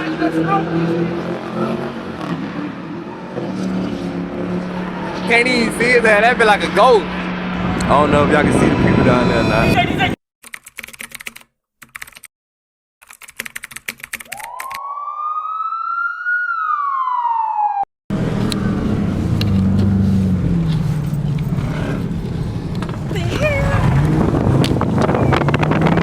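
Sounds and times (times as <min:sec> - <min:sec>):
car engines rumbling: 0:00.0 - 0:10.1, 0:18.1 - 0:26.0
siren wail: 0:02.7 - 0:06.4, 0:07.1 - 0:10.0, 0:14.3 - 0:17.9
wind on microphone: 0:07.1 - 0:10.1, 0:21.6 - 0:26.0.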